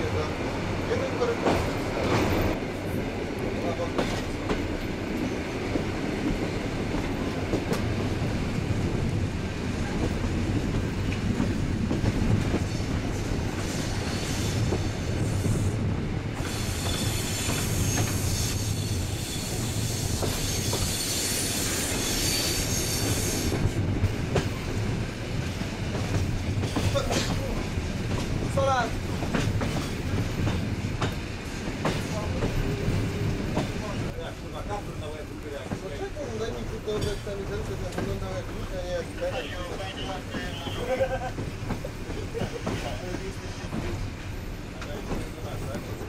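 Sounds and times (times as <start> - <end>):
clickety-clack over rail joints: 0.0 - 21.1, 21.9 - 46.0
train wheels rumbling: 0.0 - 46.0
high wheel squeal: 16.5 - 23.5.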